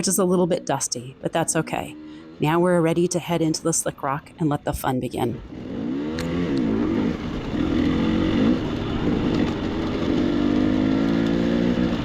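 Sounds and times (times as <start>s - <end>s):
dirt bike engine revving: 5.4s - 12.0s.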